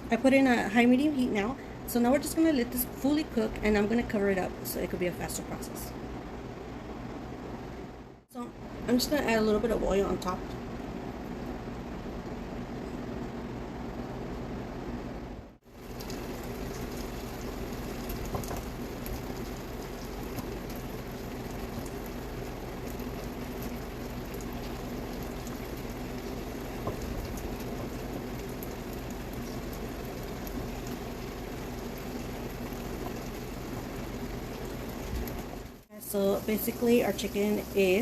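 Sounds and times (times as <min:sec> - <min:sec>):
sauce bubbling and sizzling: 0:15.6 - 0:38.0.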